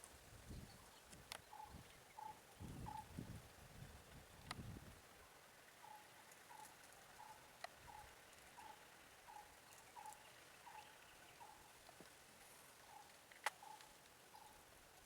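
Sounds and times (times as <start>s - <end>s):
faint animal call: 1.4s - 3.4s, 5.8s - 11.8s, 12.4s - 14.7s
faint click: 4.4s - 4.6s, 13.1s - 13.9s.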